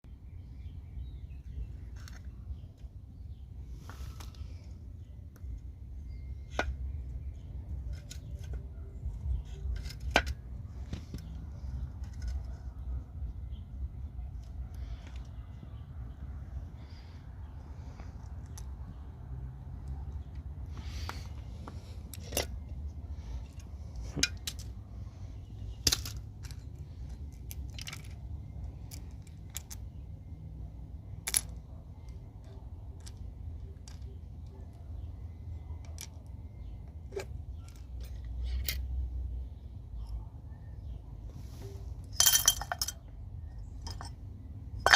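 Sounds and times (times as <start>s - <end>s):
sharp metallic clinks: 42.1s - 43.1s.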